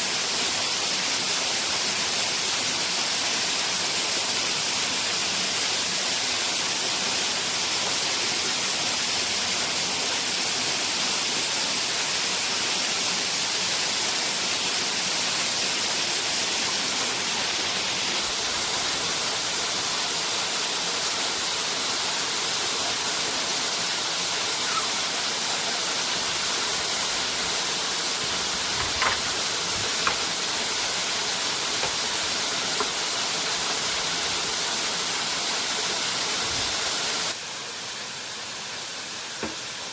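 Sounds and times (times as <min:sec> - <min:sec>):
waterfall rushing: 0:00.0 - 0:37.4
faint brief knocks: 0:39.4 - 0:39.6.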